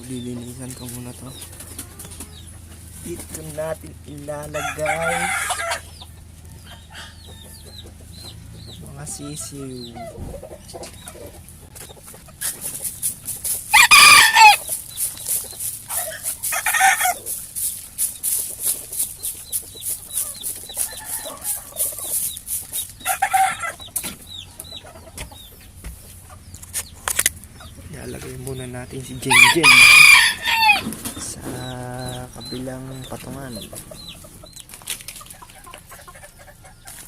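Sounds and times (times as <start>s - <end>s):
chickens clucking: 0.0s - 37.0s
rooster crowing: 4.6s - 5.8s, 13.7s - 14.6s, 29.2s - 31.0s.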